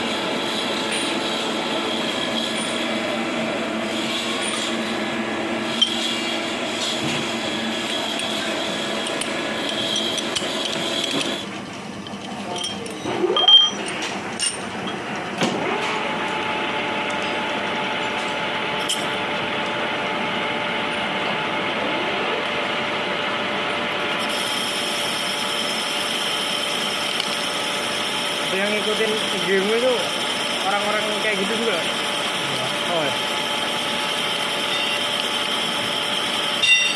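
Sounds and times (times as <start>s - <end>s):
machine tool running: 0.0s - 11.5s, 24.1s - 36.9s.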